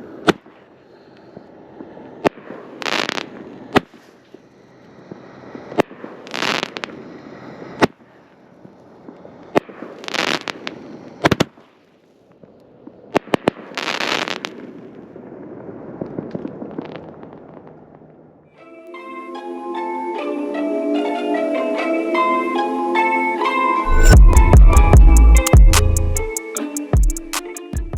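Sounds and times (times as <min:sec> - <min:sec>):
firework crackle and pops: 0:00.1 - 0:18.4.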